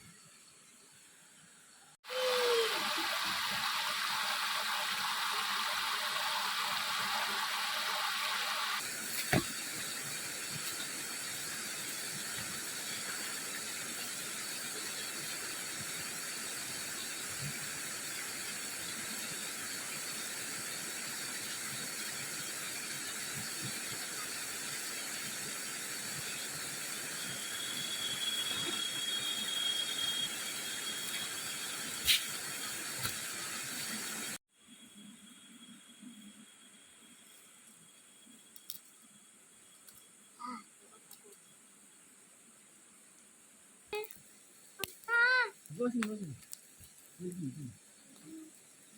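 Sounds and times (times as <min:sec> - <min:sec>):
thin high tone: 0:27.1 - 0:32.4.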